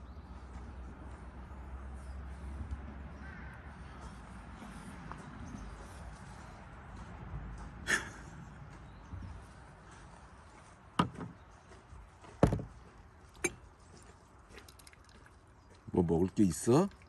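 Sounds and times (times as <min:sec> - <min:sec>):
sharp knocks or clicks: 0:11.0 - 0:11.4.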